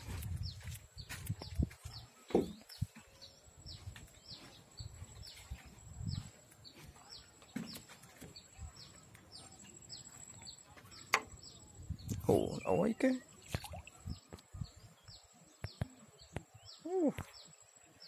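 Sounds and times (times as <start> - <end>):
wind rumble on microphone: 0.0 - 2.1, 4.8 - 6.4, 11.4 - 12.7.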